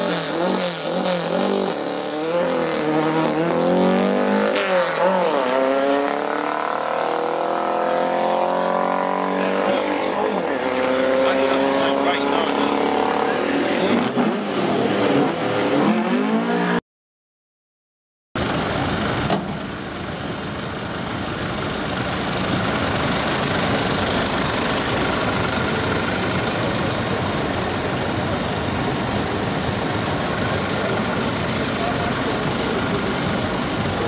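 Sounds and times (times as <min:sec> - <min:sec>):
race car engine revving: 0:00.0 - 0:16.8
engine rumble: 0:18.4 - 0:34.0.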